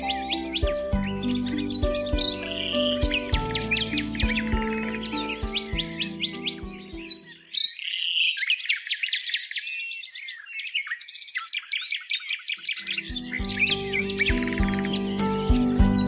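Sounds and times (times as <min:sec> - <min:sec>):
soft background music: 0:00.0 - 0:07.6, 0:12.8 - 0:16.0
songbirds chirping and singing: 0:00.0 - 0:16.0.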